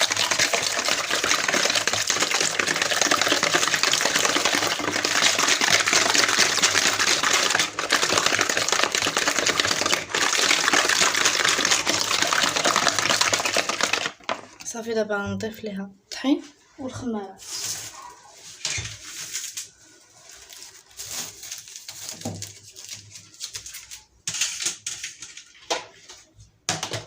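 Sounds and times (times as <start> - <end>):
electric hand mixer beating batter: 0.0 - 14.1.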